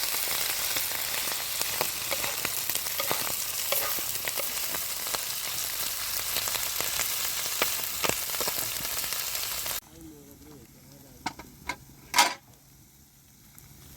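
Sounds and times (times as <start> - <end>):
food sizzling in hot oil: 0.0 - 9.8.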